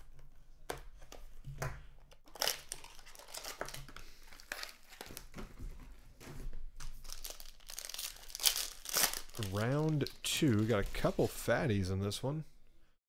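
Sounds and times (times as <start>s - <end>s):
plastic wrapping crinkling and tearing: 2.2s - 5.3s, 6.9s - 11.4s.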